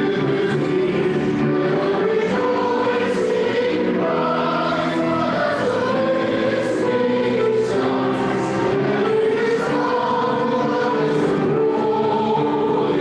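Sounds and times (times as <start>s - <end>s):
choir singing church music: 0.0s - 13.0s.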